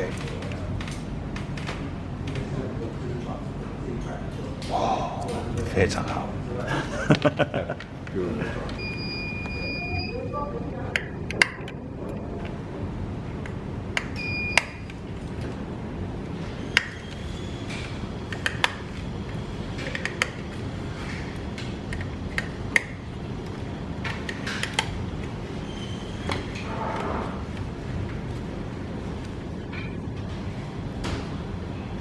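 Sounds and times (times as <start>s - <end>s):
workshop hum: 0.0s - 32.0s
high electronic beep: 8.8s - 10.2s.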